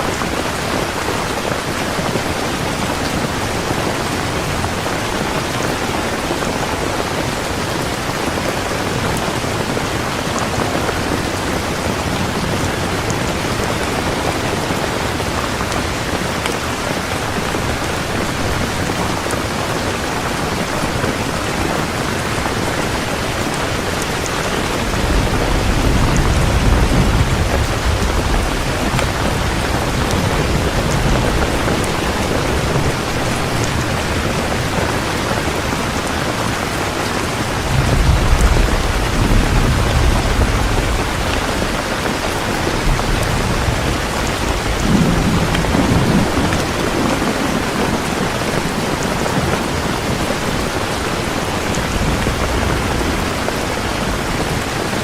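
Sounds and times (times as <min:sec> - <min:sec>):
heavy rain falling: 0:00.0 - 0:55.0
low rolls of thunder: 0:24.2 - 0:35.2, 0:37.3 - 0:50.2.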